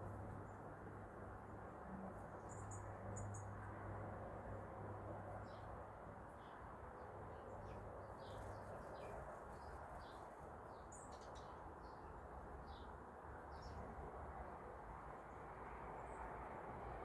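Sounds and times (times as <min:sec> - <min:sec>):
small birds chirping: 0:02.4 - 0:03.5, 0:07.3 - 0:13.8.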